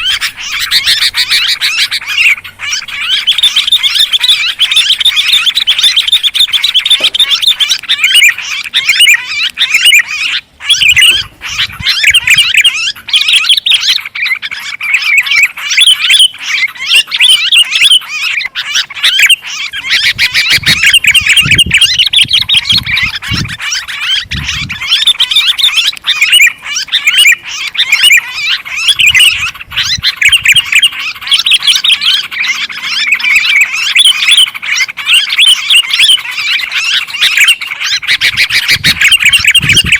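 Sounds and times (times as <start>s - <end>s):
bulbuls chattering: 0.0s - 39.9s.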